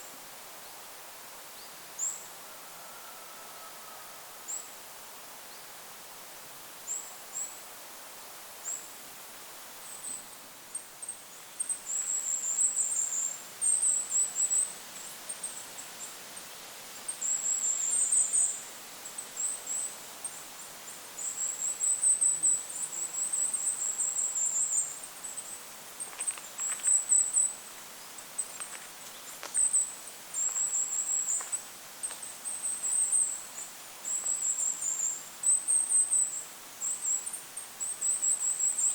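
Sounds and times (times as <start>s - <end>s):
wind hiss: 0.0s - 38.9s.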